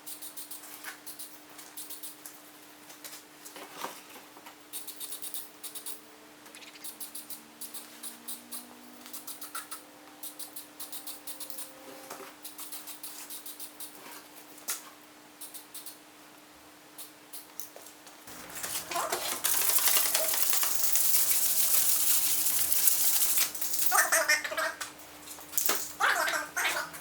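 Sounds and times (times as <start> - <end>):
sandpaper scratching: 18.8 - 23.9.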